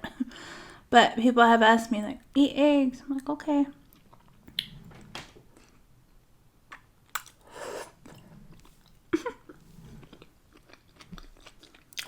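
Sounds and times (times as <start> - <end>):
chewing and biting food: 6.7 - 7.4, 9.9 - 12.0.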